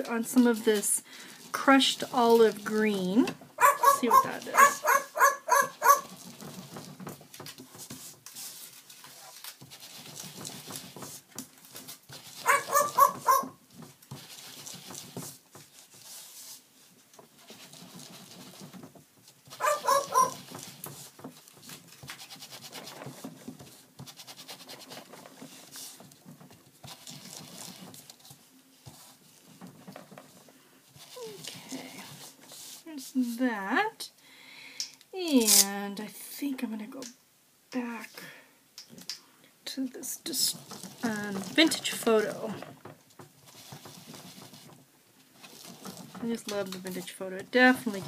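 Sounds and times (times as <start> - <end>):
bird mimicking dog barks: 3.6 - 6.0, 12.5 - 13.5, 19.6 - 20.3.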